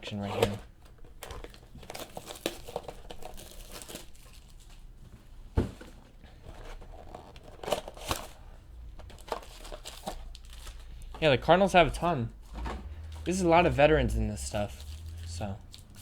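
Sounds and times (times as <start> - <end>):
wrapper crinkling and tearing: 1.2 - 4.8, 6.9 - 8.4, 9.0 - 11.2, 14.6 - 16.0.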